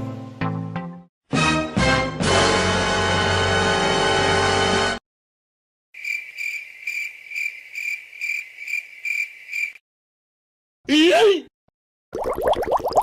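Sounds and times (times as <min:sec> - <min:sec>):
music: 0:00.0 - 0:05.0
crickets chirping: 0:06.0 - 0:09.8.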